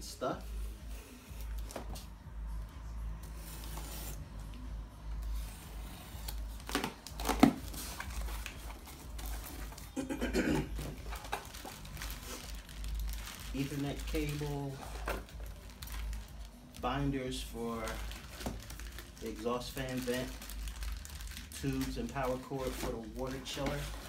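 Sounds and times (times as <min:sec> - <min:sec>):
plastic bags rustling: 0:05.3 - 0:24.0.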